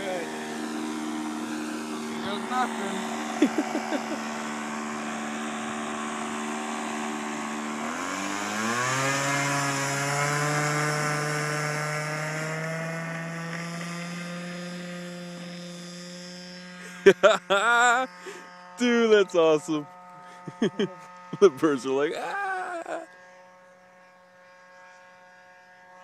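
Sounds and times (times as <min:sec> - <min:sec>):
model plane engine buzzing past: 0:00.0 - 0:26.0.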